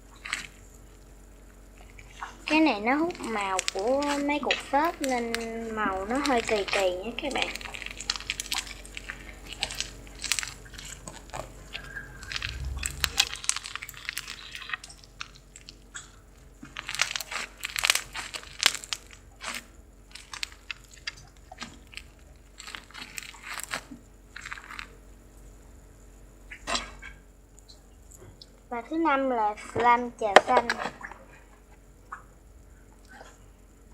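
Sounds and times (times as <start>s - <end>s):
slime crackling and popping: 0.1s - 25.0s.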